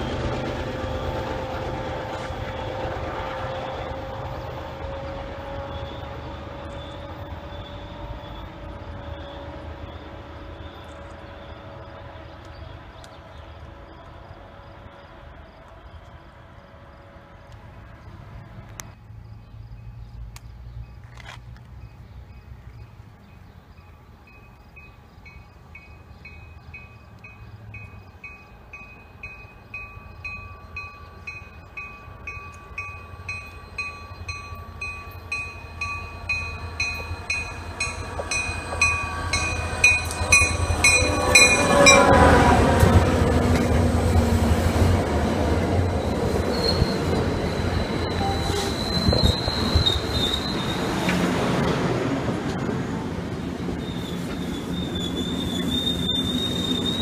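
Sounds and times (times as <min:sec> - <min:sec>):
diesel locomotive passing: 0:00.0 - 0:57.0
train coaches rumbling past: 0:00.0 - 0:57.0
train bell ringing: 0:23.3 - 0:42.6, 0:47.4 - 0:49.4.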